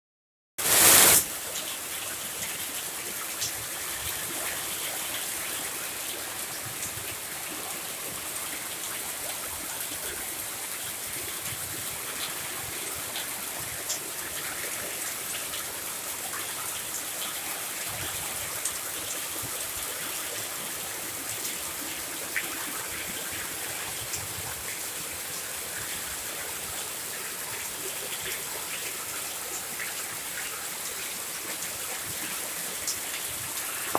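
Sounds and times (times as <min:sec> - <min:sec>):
heavy rain hissing: 0:00.6 - 0:01.3.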